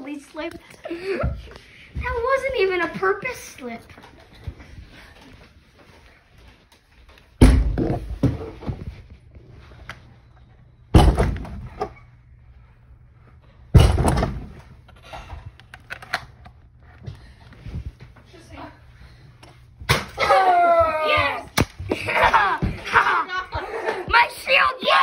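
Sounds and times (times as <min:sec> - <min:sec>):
loud thumps: 0:07.4 - 0:08.5, 0:10.9 - 0:11.7.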